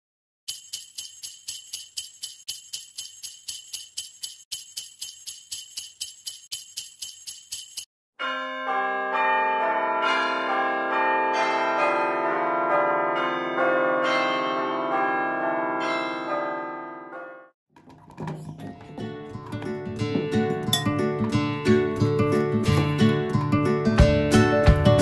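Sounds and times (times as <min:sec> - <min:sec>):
jingle bells shaken: 0:00.5 - 0:07.9.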